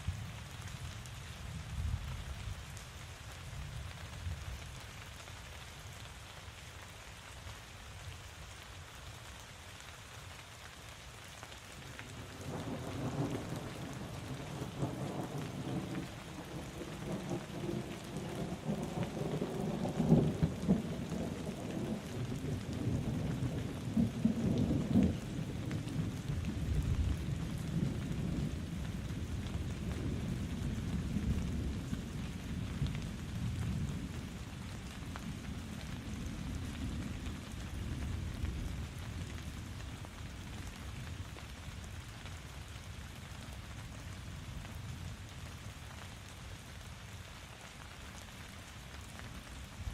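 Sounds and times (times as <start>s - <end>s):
steady rain falling: 0.0s - 49.9s
low roll of thunder: 12.1s - 41.2s.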